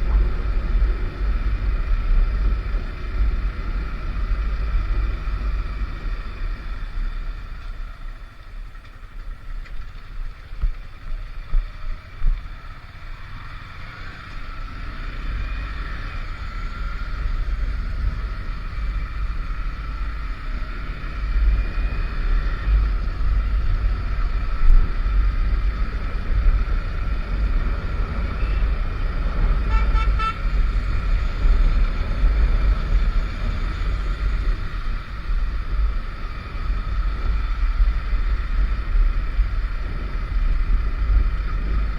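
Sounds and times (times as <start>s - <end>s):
motorcycle riding: 0.0s - 41.9s
wind rumble on microphone: 0.0s - 41.9s
vehicle horn short beeps: 29.6s - 30.5s.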